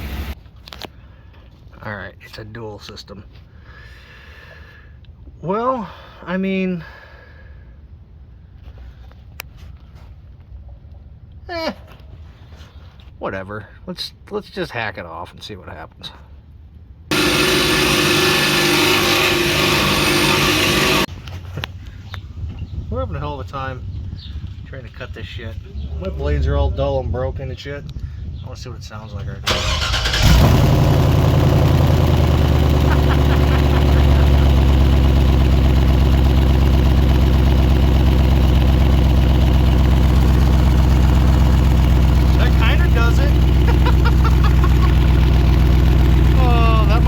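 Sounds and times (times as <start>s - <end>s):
power saw cutting steel pipe: 17.1s - 21.1s, 32.3s - 35.2s
truck engine idling: 17.1s - 21.1s, 29.5s - 47.0s.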